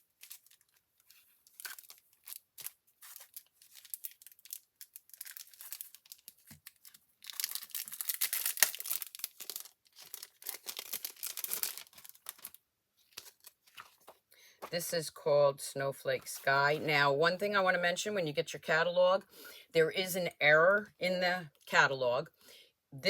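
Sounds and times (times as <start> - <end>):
packaging crinkling and tearing: 0.0 - 14.2.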